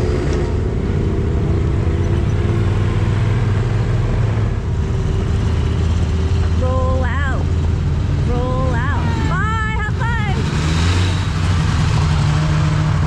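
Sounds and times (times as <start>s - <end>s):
engine running at low speed: 0.0s - 13.0s.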